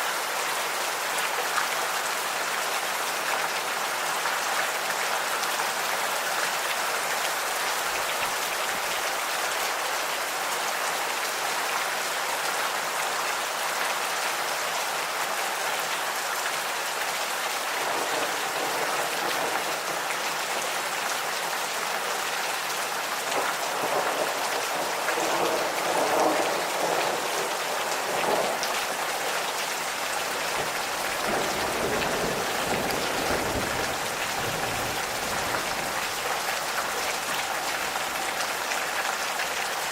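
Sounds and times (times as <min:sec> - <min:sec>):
gentle rain pattering: 0:00.0 - 0:39.9
light thunder rumbles: 0:30.4 - 0:36.0.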